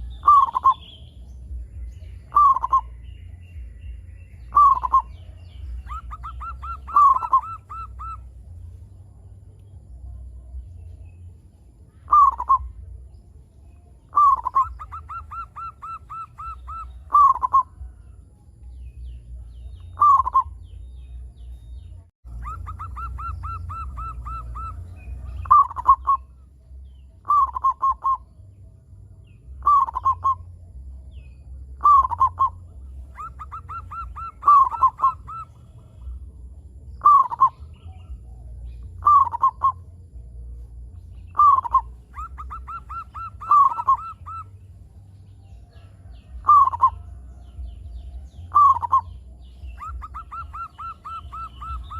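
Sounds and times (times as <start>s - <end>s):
dove cooing: 0.0s - 1.0s, 2.2s - 3.0s, 4.5s - 8.5s, 12.0s - 12.9s, 14.1s - 18.0s, 19.9s - 20.6s, 22.3s - 26.4s, 27.2s - 28.3s, 29.6s - 30.5s, 31.8s - 36.2s, 37.0s - 39.9s, 41.3s - 44.7s, 45.7s - 51.9s
low steady hum: 0.0s - 51.9s.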